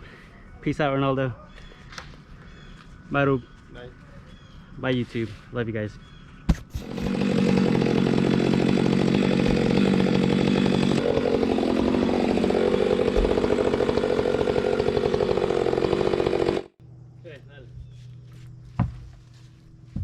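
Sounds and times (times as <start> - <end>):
chainsaw running at high revs: 6.8 - 16.8.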